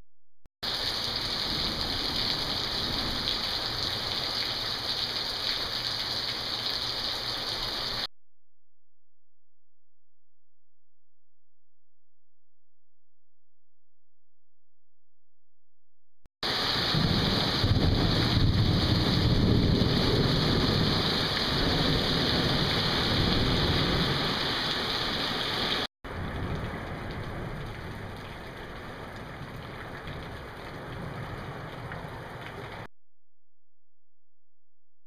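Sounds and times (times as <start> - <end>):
heavy rain pouring: 0.6 - 8.1, 16.4 - 32.9.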